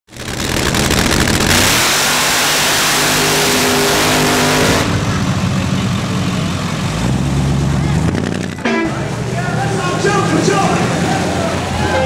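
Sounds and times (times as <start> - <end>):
car engine revving hard: 0.2 - 5.3.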